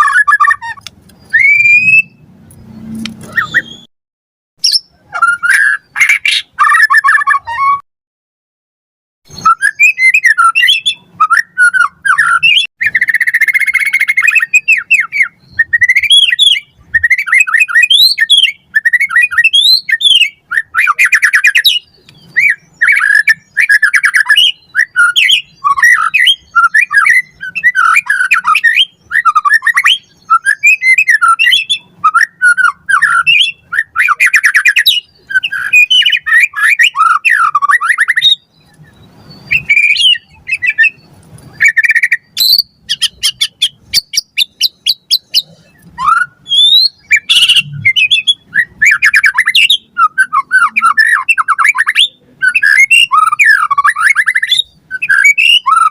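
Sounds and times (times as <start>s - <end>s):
bird singing whistled phrases: 0.0s - 2.2s, 3.2s - 3.9s, 4.6s - 7.8s, 9.3s - 55.9s.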